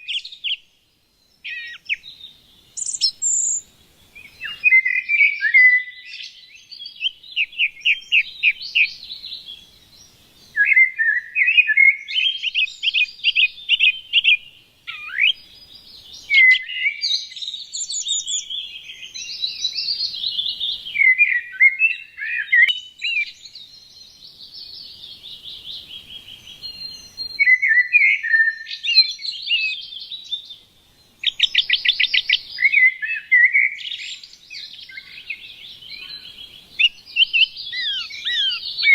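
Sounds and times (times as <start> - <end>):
songbirds chirping and singing: 0.0 - 38.9.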